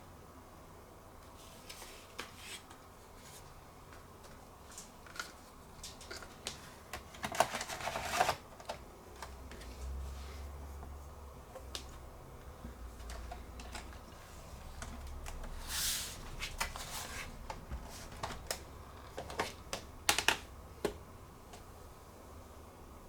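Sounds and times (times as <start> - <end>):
clicks and taps on laptop case: 19.2 - 21.6.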